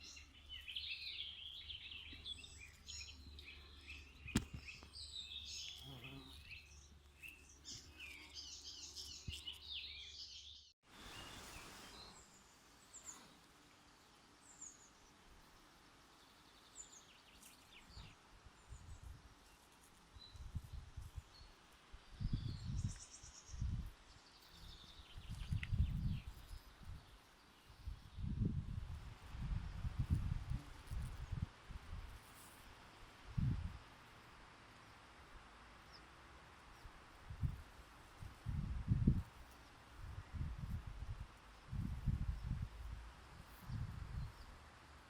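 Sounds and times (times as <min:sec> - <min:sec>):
songbirds chirping: 0:00.0 - 0:28.4.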